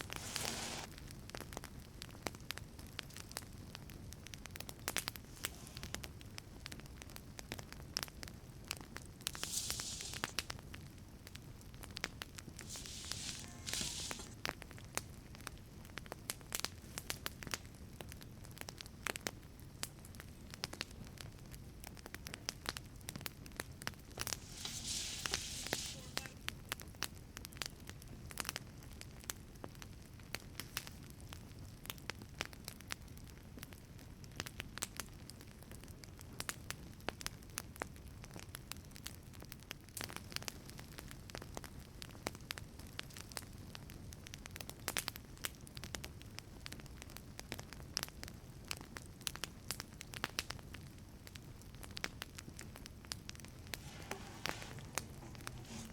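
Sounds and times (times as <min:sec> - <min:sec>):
brief hiss: 0:00.0 - 0:00.9, 0:05.2 - 0:06.0, 0:09.3 - 0:10.6, 0:12.6 - 0:14.4, 0:24.2 - 0:26.4, 0:53.7 - 0:55.9
wood fire crackling and popping: 0:00.0 - 0:55.9.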